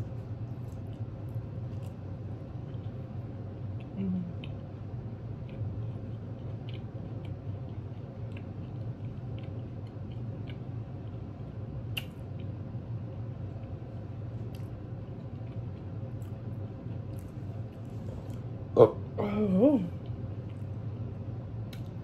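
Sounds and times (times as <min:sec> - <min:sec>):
person chewing: 0:00.0 - 0:11.3, 0:14.4 - 0:18.6
steady low hum: 0:00.0 - 0:22.0.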